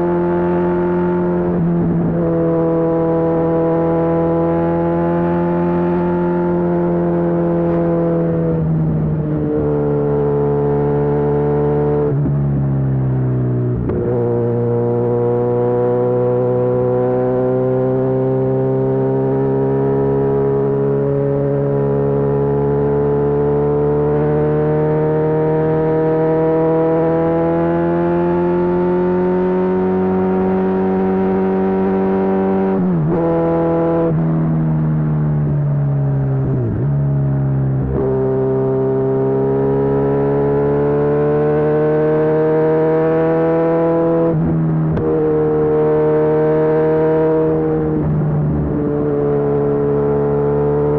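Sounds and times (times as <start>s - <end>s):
motorcycle engine revving under load: 0.0s - 50.9s.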